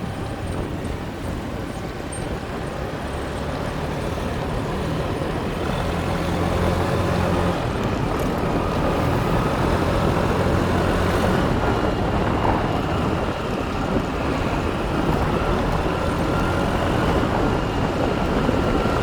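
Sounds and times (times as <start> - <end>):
motorbike engine at speed: 0.0 - 19.0
wind and road noise: 0.0 - 19.0.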